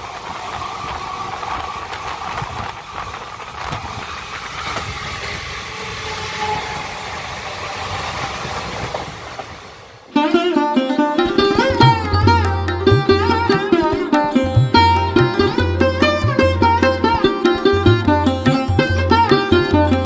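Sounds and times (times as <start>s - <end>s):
train rumble and rattle: 0.0s - 10.1s
wheels clacking on track: 0.0s - 10.2s.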